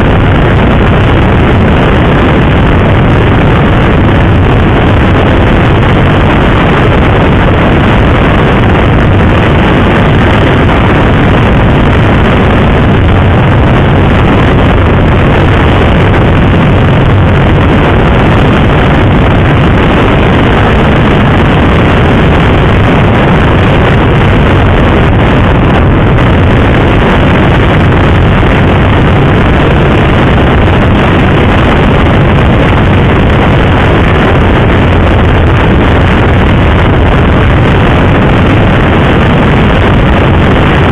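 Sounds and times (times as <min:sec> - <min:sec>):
motorcycle engine droning: 0:00.0 - 0:40.9
wind rushing on microphone: 0:00.0 - 0:40.9.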